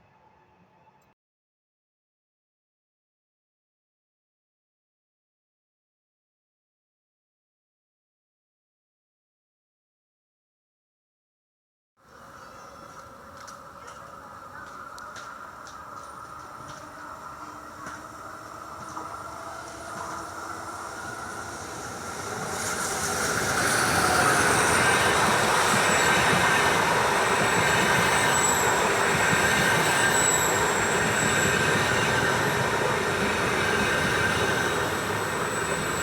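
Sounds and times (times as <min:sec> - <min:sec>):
train wheels rumbling on rails: 0:12.1 - 0:36.0
high-pitched wheel squeal: 0:27.4 - 0:36.0.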